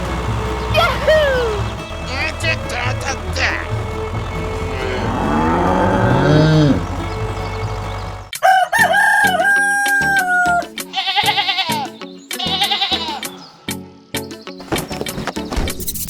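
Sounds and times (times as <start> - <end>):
rooster crowing: 8.3 - 10.7.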